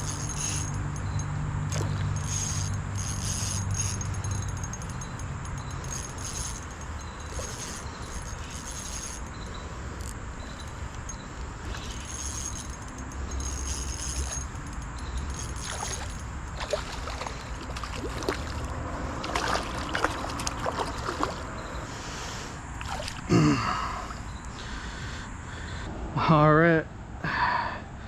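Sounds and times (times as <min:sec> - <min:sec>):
creek water trickling: 0:00.0 - 0:21.9, 0:22.8 - 0:23.3
fish splashing: 0:01.7 - 0:09.3, 0:15.6 - 0:21.5.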